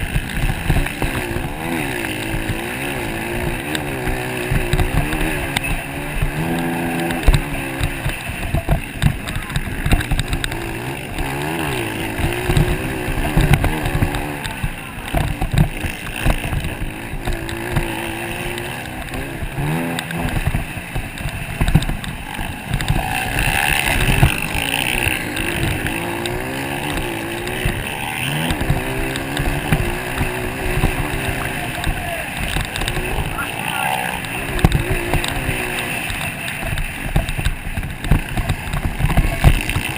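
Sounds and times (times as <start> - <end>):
motocross bike engines revving: 0.0 - 39.9.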